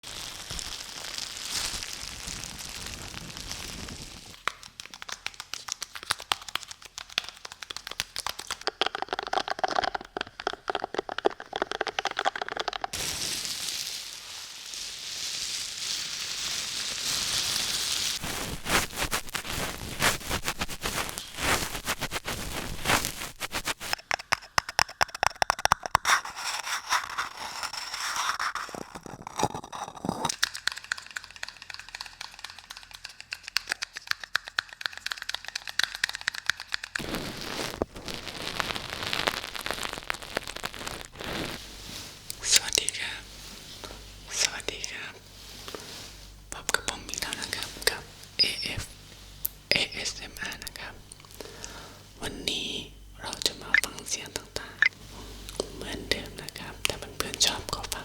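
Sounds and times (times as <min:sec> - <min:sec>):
sharp clicks and taps: 0:04.4 - 0:13.0, 0:23.9 - 0:26.1, 0:30.3 - 0:37.0.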